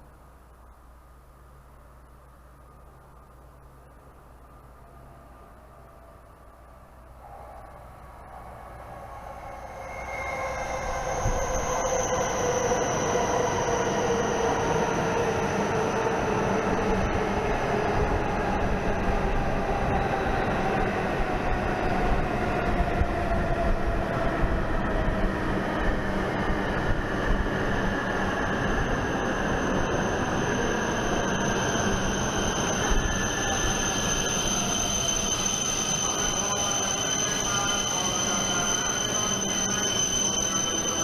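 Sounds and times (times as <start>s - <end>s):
train whine falling in pitch: 7.2s - 17.2s, 28.4s - 41.0s
steady high tone: 7.2s - 21.2s, 26.8s - 41.0s.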